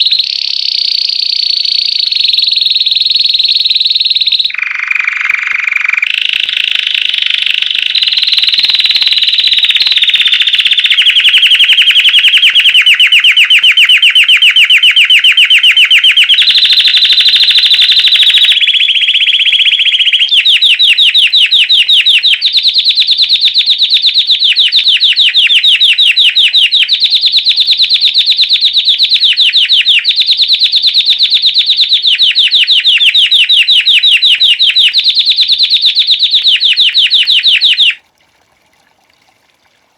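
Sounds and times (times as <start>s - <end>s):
canary singing fast high trills: 0.0s - 38.0s.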